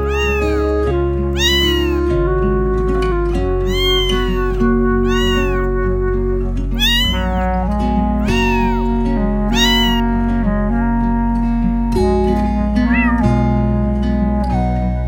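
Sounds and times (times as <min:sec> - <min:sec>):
cat meowing: 0:00.0 - 0:02.2, 0:03.6 - 0:05.9, 0:06.8 - 0:08.9, 0:09.5 - 0:10.1, 0:12.8 - 0:13.3
background music with held notes: 0:00.0 - 0:15.0.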